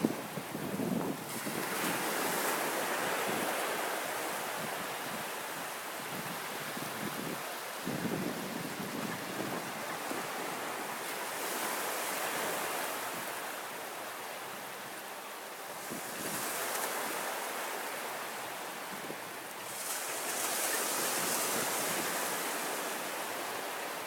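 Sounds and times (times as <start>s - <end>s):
wind buffeting microphone: 0.0s - 2.3s.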